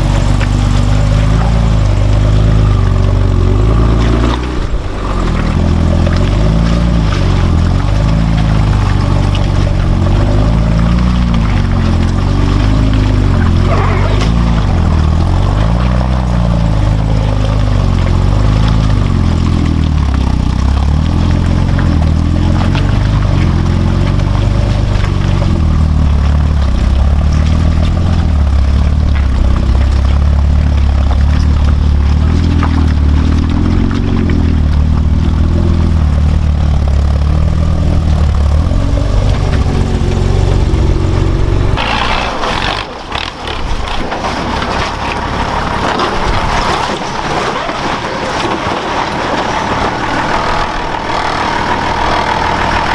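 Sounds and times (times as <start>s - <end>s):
truck engine running under load: 0.0s - 52.9s.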